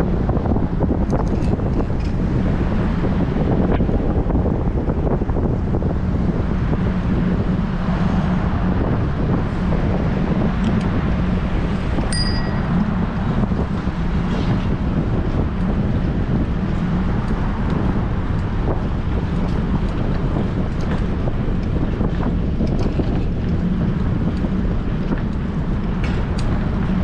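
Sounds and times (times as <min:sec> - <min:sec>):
wind buffeting microphone: 0:00.0 - 0:27.0
bicycle bell ding: 0:12.1 - 0:12.8.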